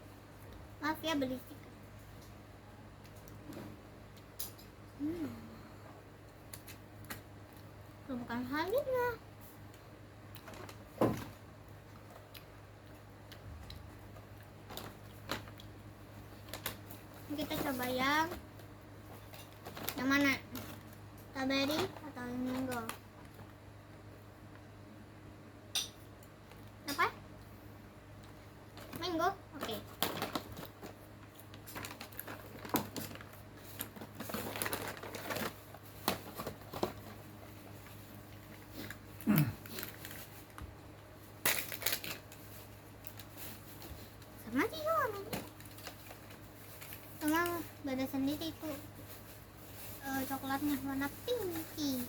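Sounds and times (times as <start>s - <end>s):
plastic wrapper crinkling: 14.6s - 15.7s, 19.2s - 23.0s, 28.7s - 52.0s.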